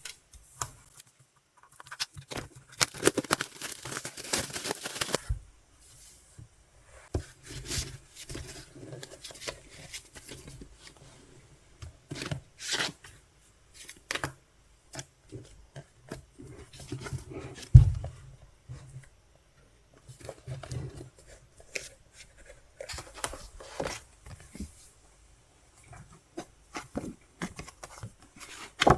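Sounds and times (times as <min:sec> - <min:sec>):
packaging rustling and crinkling: 0:01.7 - 0:05.3.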